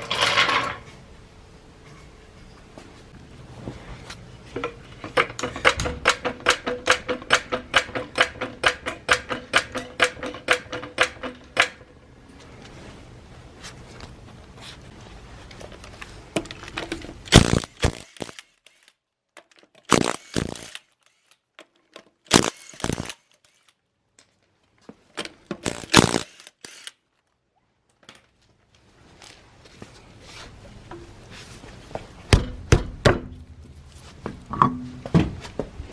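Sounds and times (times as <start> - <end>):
knocks and clatter: 4.5 - 12.0.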